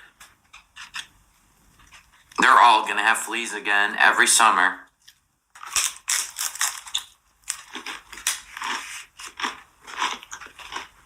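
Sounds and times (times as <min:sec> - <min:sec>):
chewing crunchy food: 0:05.0 - 0:11.0.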